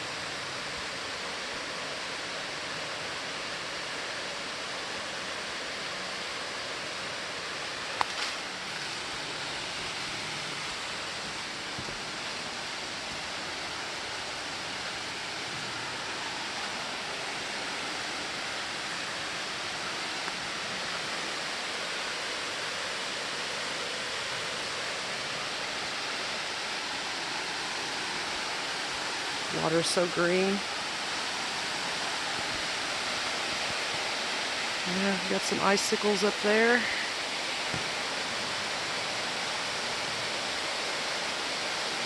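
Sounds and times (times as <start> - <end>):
waterfall pouring: 0.0 - 42.0.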